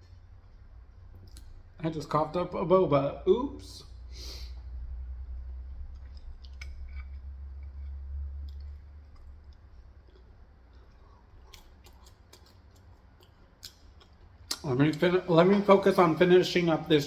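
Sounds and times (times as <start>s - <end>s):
chewing: 5.7s - 15.2s.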